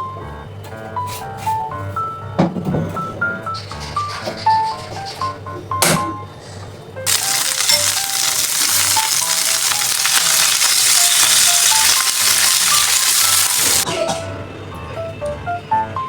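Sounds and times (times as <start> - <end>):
light background music: 0.0 - 16.0
food sizzling in hot oil: 7.1 - 13.9.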